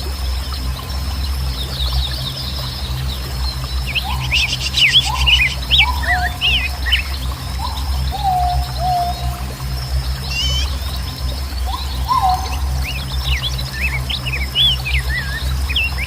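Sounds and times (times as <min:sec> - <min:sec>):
steady low rumble: 0:00.0 - 0:16.0
birds chirping and trilling: 0:00.6 - 0:16.0
whistled bird calls: 0:03.8 - 0:09.5, 0:10.2 - 0:10.9, 0:11.6 - 0:16.0.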